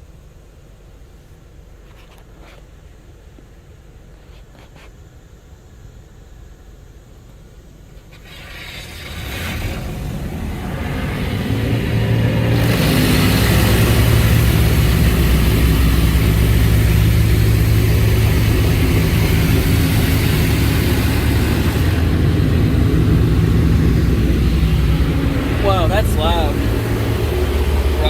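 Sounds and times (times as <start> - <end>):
high-pressure water spray hissing: 8.1 - 28.0
steady low hum: 9.6 - 28.0.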